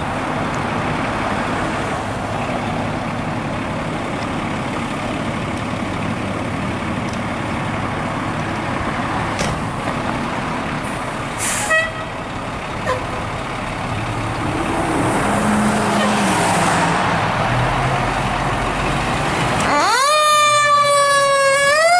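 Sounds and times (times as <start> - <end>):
diesel engine running: 0.0 - 21.9
air brake hiss: 11.4 - 11.9.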